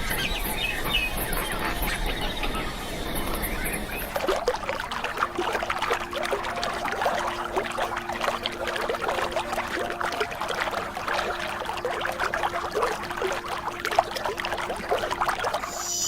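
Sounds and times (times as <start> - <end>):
splashing trickling water: 0.0 - 16.0.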